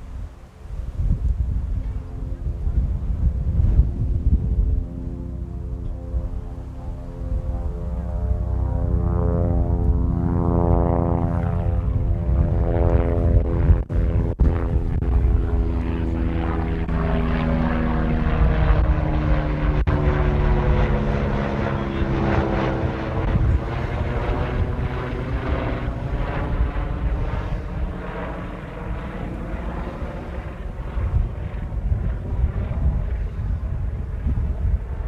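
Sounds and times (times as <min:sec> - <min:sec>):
propeller plane engine drone: 0:00.0 - 0:35.0
wind rumble on microphone: 0:00.0 - 0:35.0.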